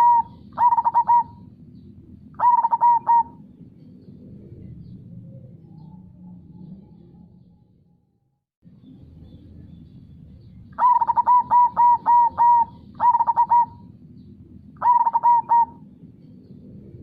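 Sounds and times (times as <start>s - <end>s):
dove cooing: 0.0s - 1.6s, 2.2s - 3.5s, 10.8s - 14.0s, 14.8s - 16.0s
low background rush: 0.0s - 8.0s, 8.6s - 17.0s.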